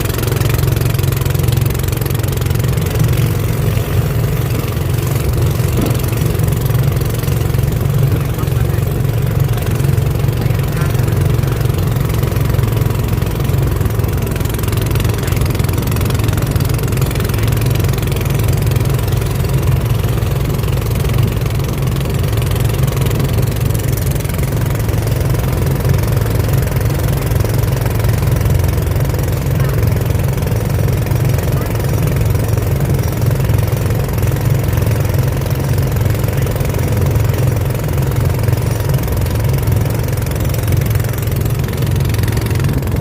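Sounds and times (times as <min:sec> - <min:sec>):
boat engine running steadily: 0:00.0 - 0:43.0.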